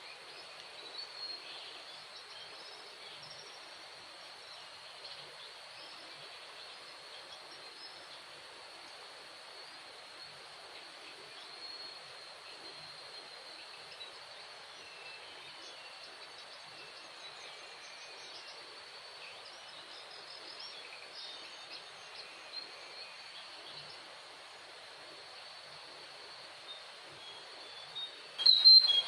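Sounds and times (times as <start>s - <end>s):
bird chirps and calls: 28.4s - 29.0s.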